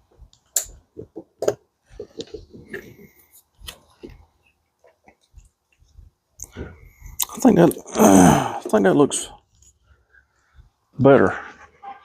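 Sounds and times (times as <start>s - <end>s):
soft rustling: 1.8s - 7.2s.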